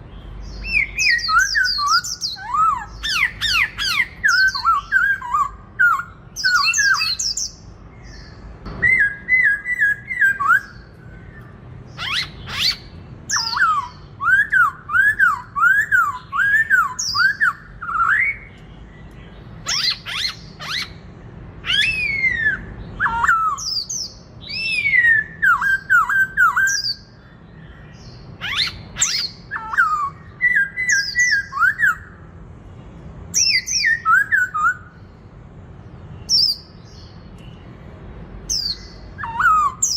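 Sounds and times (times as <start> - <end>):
bird whistled song: 0.0 - 21.0, 21.6 - 32.3, 33.3 - 35.1, 36.2 - 37.8, 38.4 - 39.9
sharp high bird calls: 0.0 - 32.3, 33.4 - 35.1, 38.5 - 39.9.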